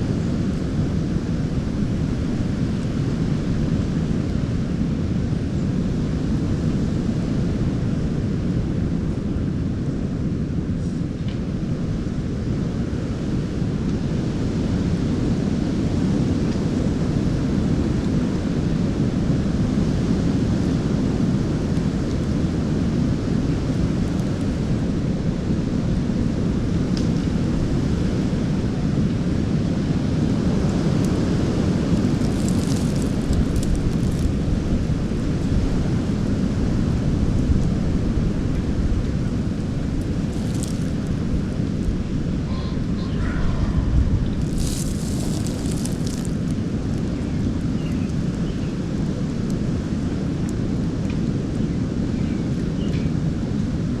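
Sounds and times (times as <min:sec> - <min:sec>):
strong wind buffeting microphone: 0:00.0 - 0:54.0
faint rustles: 0:31.9 - 0:34.9, 0:40.0 - 0:41.2, 0:44.2 - 0:46.6.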